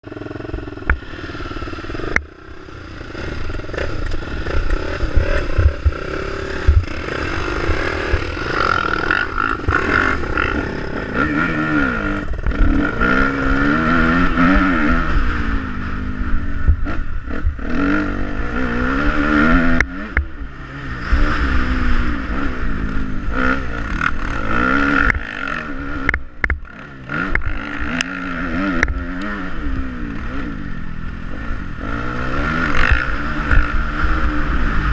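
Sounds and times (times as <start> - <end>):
motocross bike engine revving: 0.0 - 34.9.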